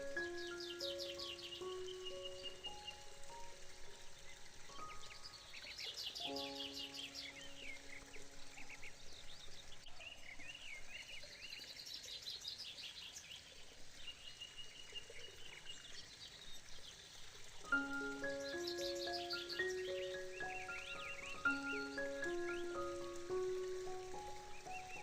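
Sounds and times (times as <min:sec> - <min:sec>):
small birds chirping: 0:00.0 - 0:25.0
music chord: 0:17.7 - 0:25.0.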